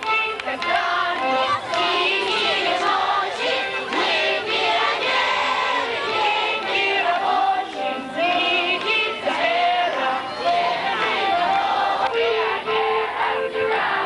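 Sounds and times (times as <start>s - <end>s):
musical accompaniment: 0.0s - 14.0s
choir singing: 0.6s - 14.0s.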